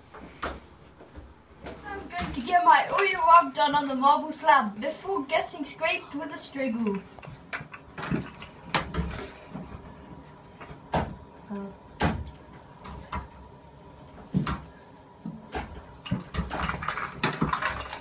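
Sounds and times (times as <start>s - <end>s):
rustling and shuffling: 0.0s - 5.0s.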